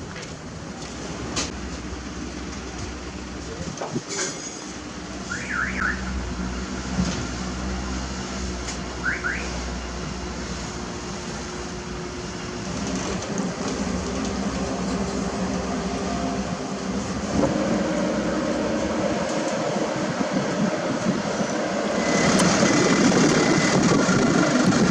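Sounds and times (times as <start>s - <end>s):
heavy machinery engines rumbling: 0.0s - 24.9s.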